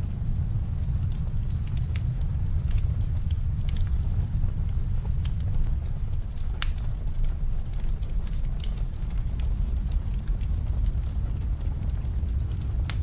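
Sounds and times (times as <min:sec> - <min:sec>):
low rumble of wind: 0:00.0 - 0:13.0
wood fire crackling: 0:00.0 - 0:13.0.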